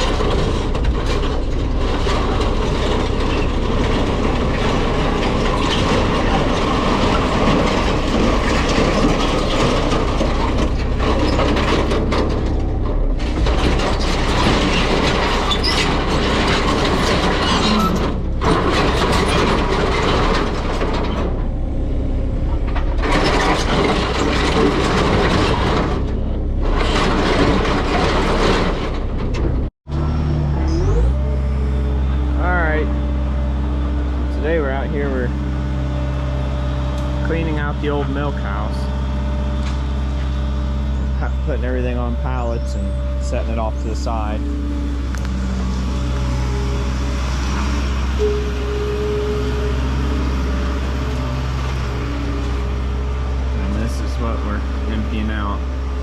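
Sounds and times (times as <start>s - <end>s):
machinery clanking and rattling: 0.0s - 56.0s.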